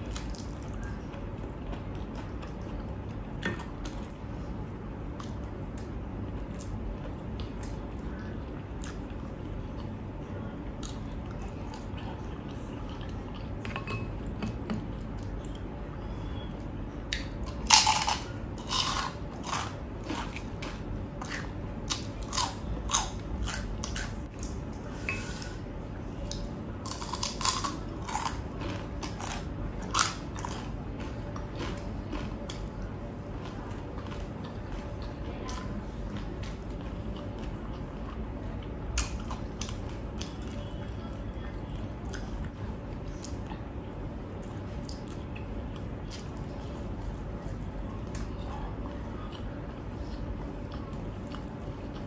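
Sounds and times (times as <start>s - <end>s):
person chewing crunchy food: 0.0s - 4.1s, 17.1s - 24.9s, 26.2s - 40.7s.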